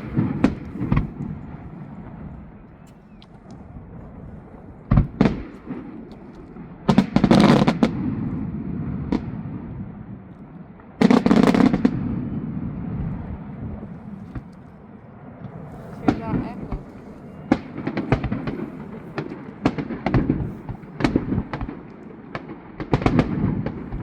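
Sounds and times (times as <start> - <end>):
steady low rumble: 0.0 - 6.9, 7.8 - 24.0
firework bangs: 0.0 - 24.0
fireworks crackling: 0.0 - 24.0.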